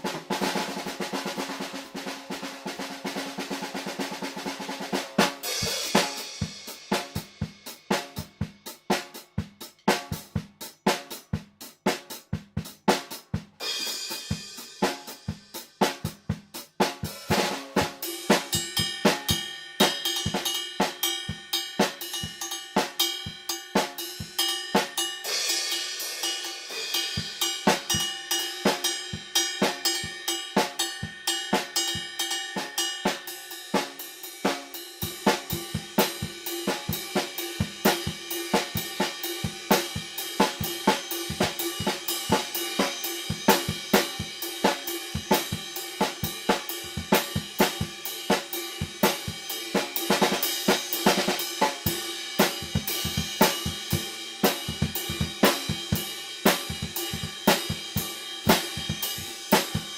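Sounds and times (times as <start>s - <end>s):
drum kit playing: 0.0s - 59.9s
cymbal wash: 18.1s - 59.9s.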